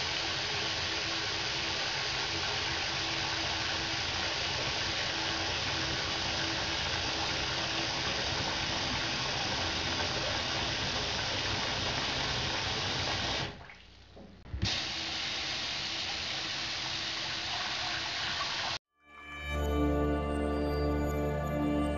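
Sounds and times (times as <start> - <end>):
running water rushing: 0.0 - 13.7.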